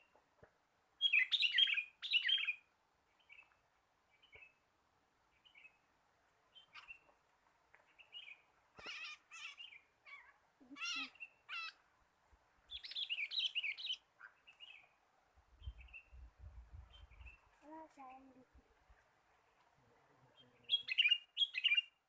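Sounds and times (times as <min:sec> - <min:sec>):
bulbuls chirping and chattering: 0:07.8 - 0:11.8, 0:12.7 - 0:15.0, 0:19.3 - 0:22.0.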